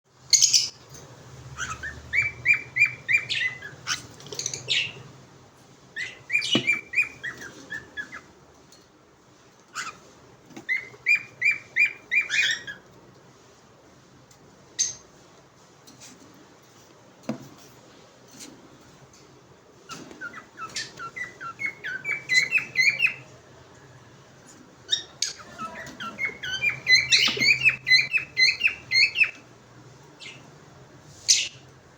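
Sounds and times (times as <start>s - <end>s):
parrot chirping: 0.3s - 0.8s, 1.4s - 5.2s, 6.0s - 8.4s, 9.7s - 12.9s, 19.9s - 23.4s, 24.8s - 29.5s
parrot sharp calls: 20.2s - 23.2s, 24.9s - 29.4s.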